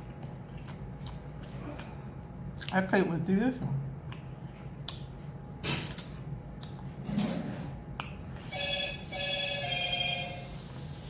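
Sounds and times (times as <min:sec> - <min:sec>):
phone ringtone: 0:08.5 - 0:10.5.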